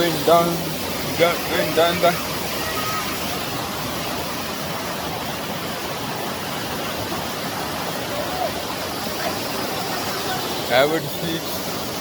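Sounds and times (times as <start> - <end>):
faint voices: 0.0 - 3.6, 7.0 - 11.8
waterfall rushing: 0.0 - 12.0.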